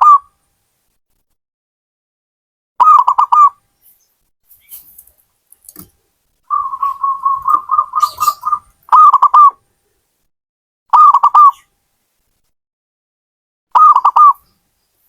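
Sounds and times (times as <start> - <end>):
dove cooing: 6.5 - 9.6.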